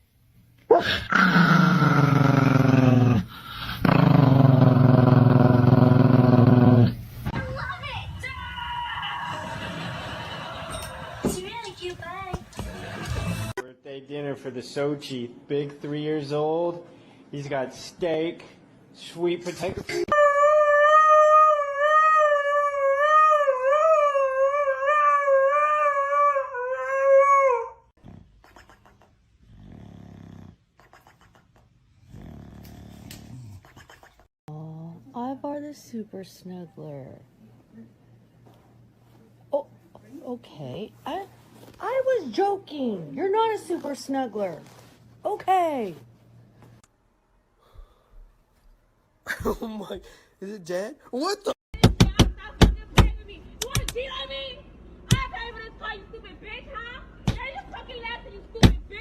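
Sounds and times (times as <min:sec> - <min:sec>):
dog growling low: 0:00.8 - 0:07.0, 0:29.4 - 0:30.6, 0:32.0 - 0:33.6
dog howling: 0:20.1 - 0:27.8.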